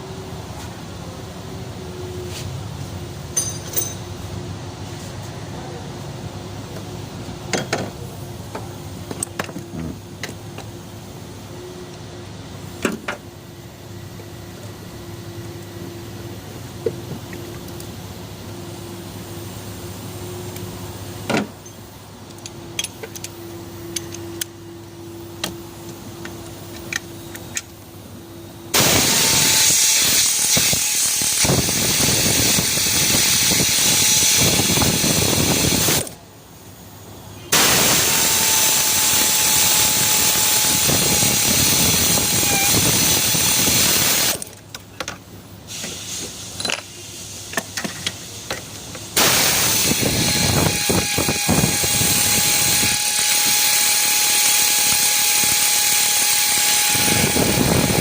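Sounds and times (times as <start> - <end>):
power tool running and hissing: 28.7 - 36.2, 37.6 - 44.4, 49.2 - 58.0.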